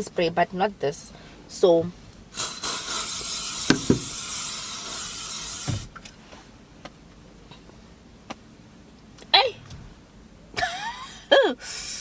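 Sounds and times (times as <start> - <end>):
spray bottle hissing: 2.3 - 5.9.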